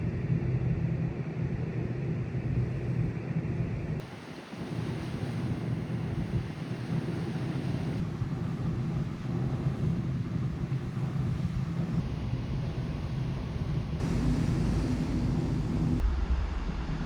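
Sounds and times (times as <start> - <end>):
wind buffeting microphone: 2.4 - 16.0
ferry engine rumble: 5.4 - 16.1.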